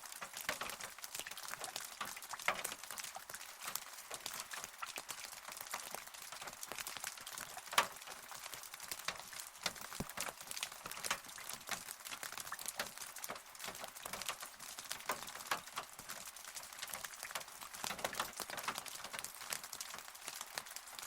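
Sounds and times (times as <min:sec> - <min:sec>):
drops ticking on a hard surface: 0:00.1 - 0:20.7.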